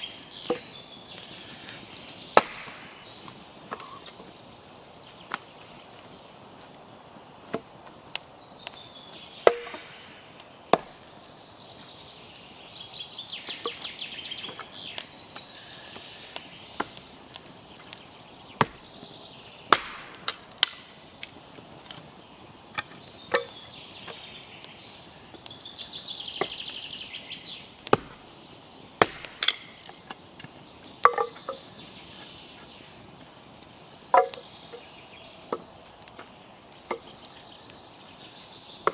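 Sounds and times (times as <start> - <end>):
axe chopping wood: 2.4 - 2.9, 9.4 - 10.0, 10.7 - 11.0, 18.6 - 18.8, 19.7 - 20.9, 27.9 - 28.2, 29.0 - 29.8.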